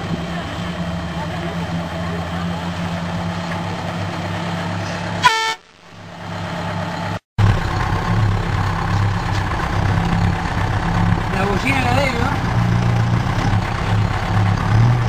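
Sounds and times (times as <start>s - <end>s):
diesel engine idling: 0.0s - 15.0s
truck horn toot: 5.2s - 6.1s.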